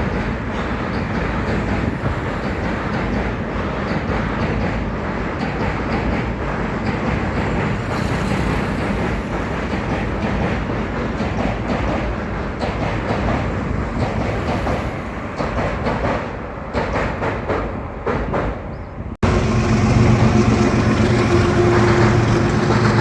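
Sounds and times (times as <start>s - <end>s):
freight train wheels rumbling: 0.0s - 23.0s.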